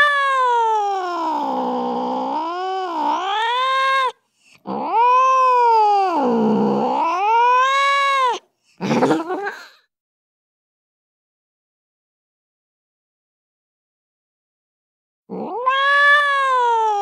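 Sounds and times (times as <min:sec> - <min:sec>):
cat yowling: 0:00.0 - 0:08.4, 0:15.3 - 0:17.0.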